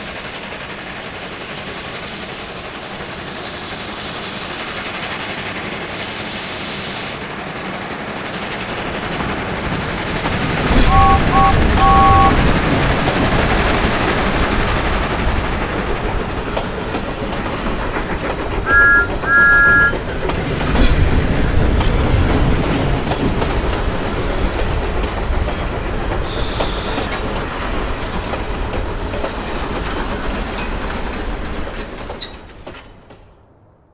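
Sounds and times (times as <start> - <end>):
train wheels rumbling on rails: 0.0 - 33.6
two-tone train whistle: 10.8 - 12.5, 18.7 - 20.0
high wheel squeals: 18.7 - 20.1, 28.8 - 32.7.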